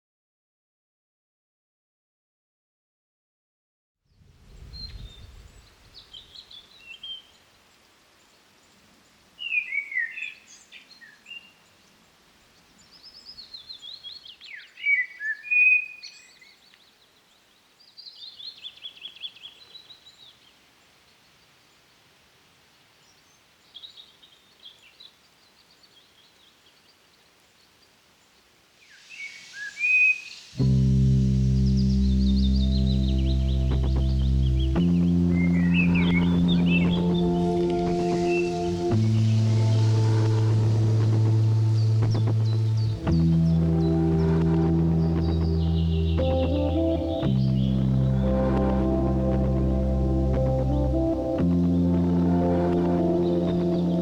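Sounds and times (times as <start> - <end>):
brief low rumble: 4.2 - 5.9
birds chirping and trilling: 9.4 - 21.5, 23.0 - 54.0.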